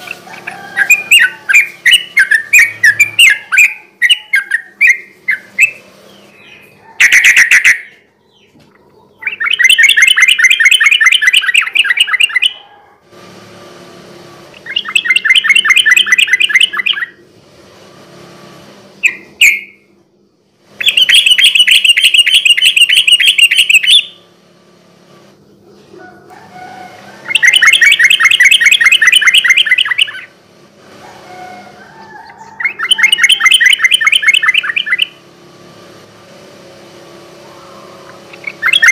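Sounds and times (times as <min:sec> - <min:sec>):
bulbul singing chattering notes: 0:00.0 - 0:08.4, 0:09.2 - 0:12.6, 0:14.6 - 0:17.2, 0:20.8 - 0:24.2, 0:27.2 - 0:30.4, 0:32.4 - 0:35.2, 0:37.5 - 0:38.9.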